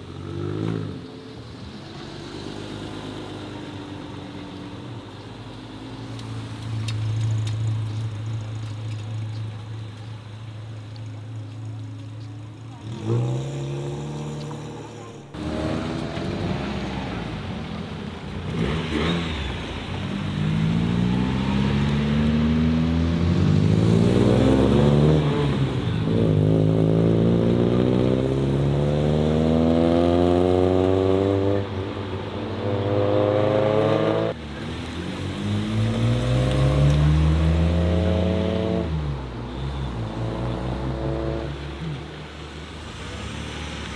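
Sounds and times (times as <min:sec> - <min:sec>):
car engine accelerating hard: 0:12.7 - 0:31.8, 0:32.5 - 0:39.1.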